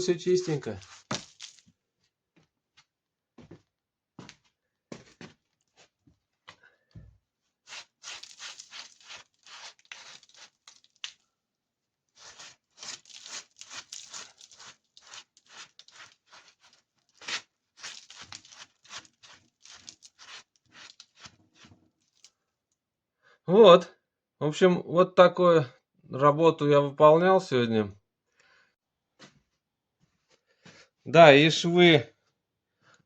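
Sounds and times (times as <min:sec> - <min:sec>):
rag scrubbing over brickwork: 0:07.6 - 0:11.0, 0:12.2 - 0:21.7.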